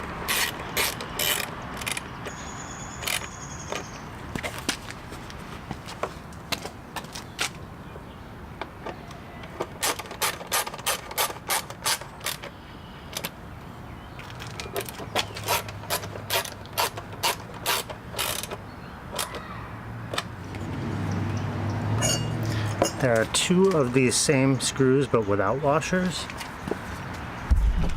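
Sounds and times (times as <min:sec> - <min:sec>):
ratchet wrench clicking: 0:15.4 - 0:18.6.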